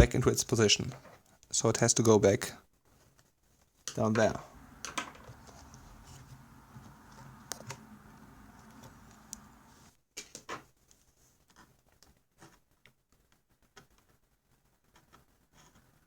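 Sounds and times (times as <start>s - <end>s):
faint low hum: 4.0s - 9.9s.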